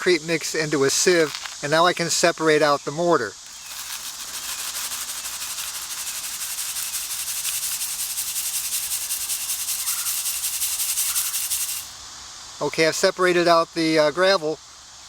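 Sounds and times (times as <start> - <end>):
sand rasping through sieve mesh: 1.0 - 1.8, 3.4 - 12.0
gravel rattling in a sieve: 1.0 - 2.0, 3.4 - 12.0.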